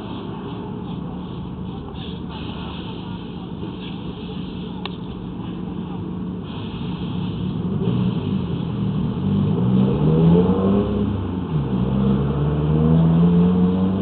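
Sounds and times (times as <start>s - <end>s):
vehicle engine speeding up and slowing: 7.5s - 14.0s.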